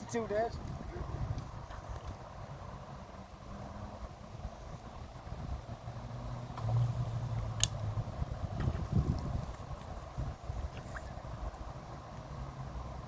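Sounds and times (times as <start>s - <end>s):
low engine hum: 0.0s - 13.0s
wind rumble on microphone: 0.0s - 13.0s.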